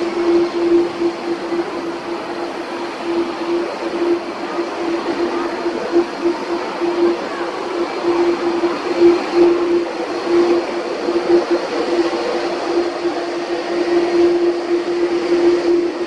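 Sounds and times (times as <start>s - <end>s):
jet engine rush: 0.0s - 16.0s
steady hum: 0.0s - 16.0s.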